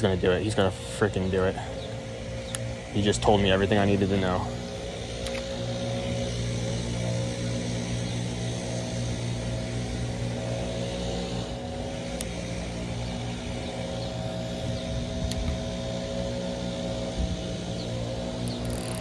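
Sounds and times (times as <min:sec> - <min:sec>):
engine humming steadily: 0:00.0 - 0:19.0
sharp tick: 0:02.4 - 0:02.7, 0:11.4 - 0:15.8.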